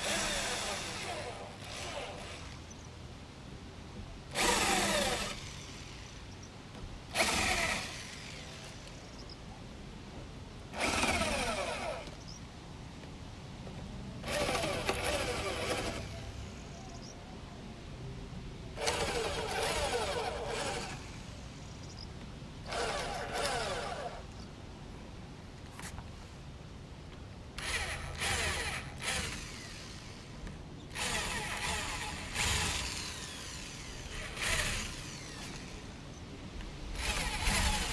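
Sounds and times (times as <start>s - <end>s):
power drill bursts: 0.0s - 2.8s, 4.3s - 6.2s, 7.1s - 9.0s, 10.7s - 12.2s, 14.2s - 16.6s, 18.8s - 21.3s, 22.6s - 24.3s, 27.6s - 30.3s, 30.9s - 35.9s, 37.0s - 37.9s.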